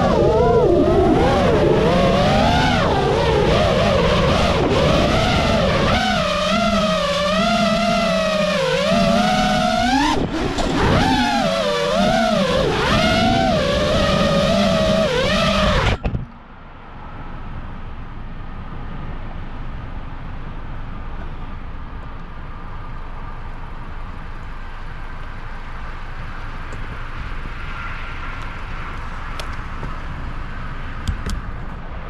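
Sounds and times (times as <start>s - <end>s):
quadcopter motors whining: 0.0s - 16.2s
faint high whine: 0.0s - 30.9s
steady low rumble: 0.0s - 32.0s.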